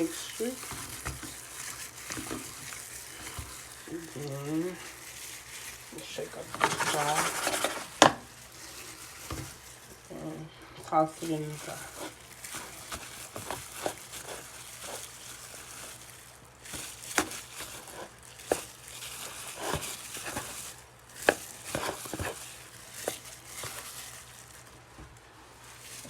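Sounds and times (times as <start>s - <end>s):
breading rustling: 0.0s - 26.0s.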